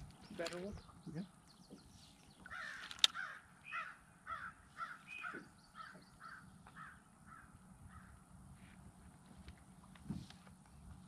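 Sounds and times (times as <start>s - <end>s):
bird calling: 0.0s - 8.2s
sharp click: 2.8s - 3.2s.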